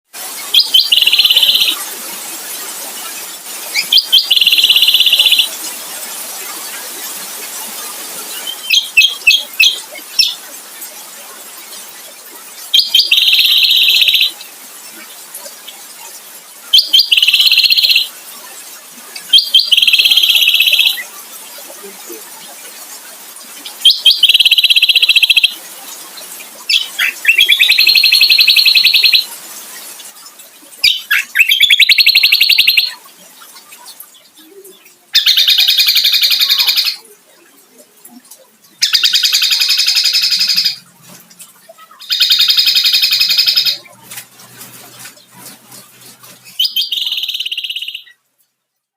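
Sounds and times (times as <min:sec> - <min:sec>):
songbird singing trills: 0:00.5 - 0:01.8, 0:03.8 - 0:05.6, 0:08.4 - 0:10.4, 0:12.8 - 0:14.4, 0:16.7 - 0:18.1, 0:19.3 - 0:21.1, 0:23.8 - 0:25.6, 0:26.7 - 0:29.3, 0:30.8 - 0:33.0, 0:34.4 - 0:37.1, 0:46.5 - 0:48.2.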